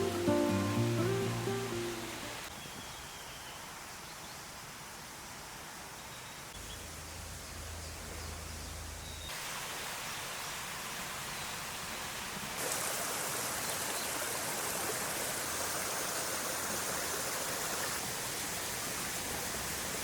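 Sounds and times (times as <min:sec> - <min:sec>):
mountain stream rushing: 0:00.0 - 0:02.5, 0:09.3 - 0:20.0.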